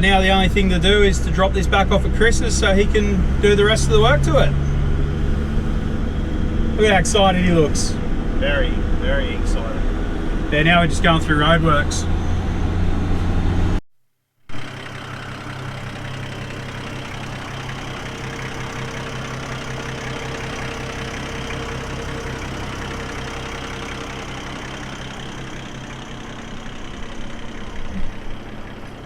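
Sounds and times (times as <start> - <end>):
road noise: 0.0 - 13.8, 14.5 - 29.0
vehicle engine hum: 0.0 - 13.8, 14.5 - 29.0.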